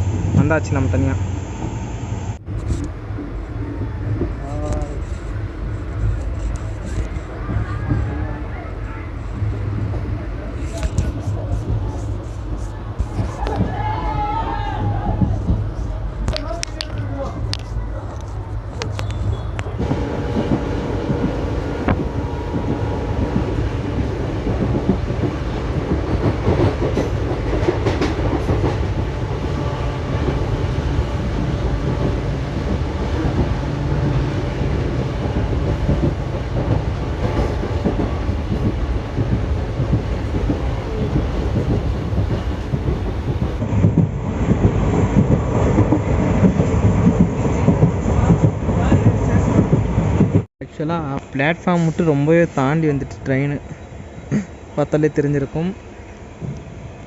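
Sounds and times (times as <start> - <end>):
train wheels rumbling on rail: 2.4 - 57.0
sharp track clicks: 16.2 - 50.4.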